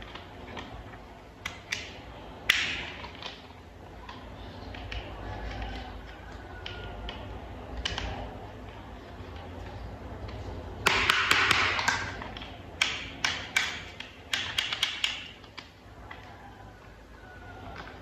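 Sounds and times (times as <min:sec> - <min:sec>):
toy parts clicking: 0:10.2 - 0:16.3.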